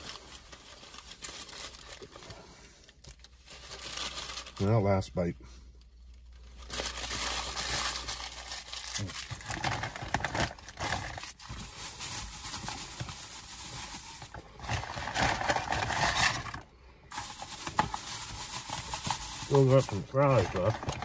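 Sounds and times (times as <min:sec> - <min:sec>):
paper rustling: 0:09.0 - 0:21.0.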